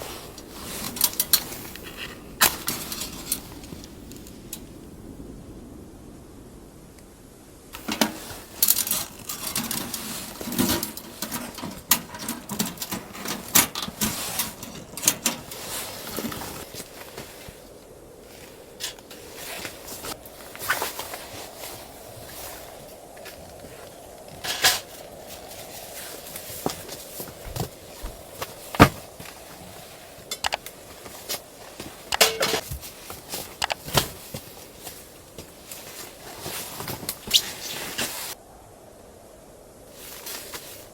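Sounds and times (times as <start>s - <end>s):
objects clicking and knocking: 7.8s - 16.7s, 30.2s - 34.5s.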